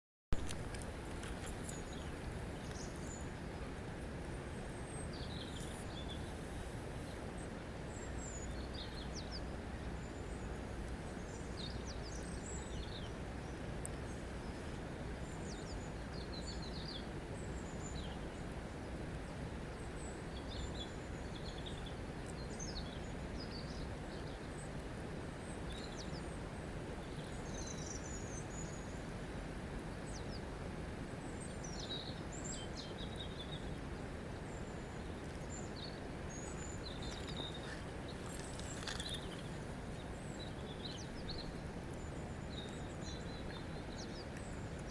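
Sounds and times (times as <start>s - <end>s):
small birds chirping: 34.4s - 44.9s.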